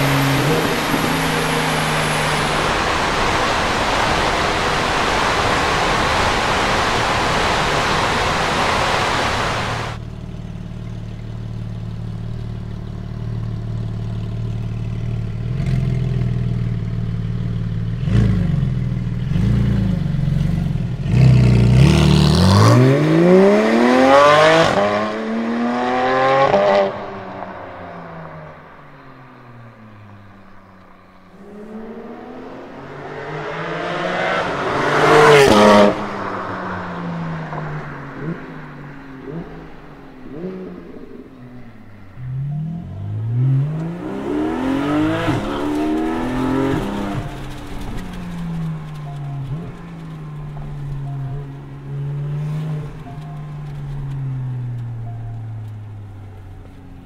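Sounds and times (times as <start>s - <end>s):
car driving off: 0.0s - 57.0s
loud steady unpitched noise: 0.1s - 10.0s
sports car engine idling: 10.0s - 18.0s
engine throttle blips and revving: 29.7s - 57.0s.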